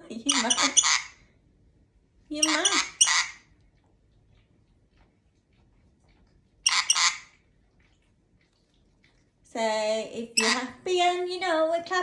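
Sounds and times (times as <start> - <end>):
parrot squawk: 0.3 - 1.2, 2.4 - 3.4, 6.7 - 7.3, 10.4 - 10.7.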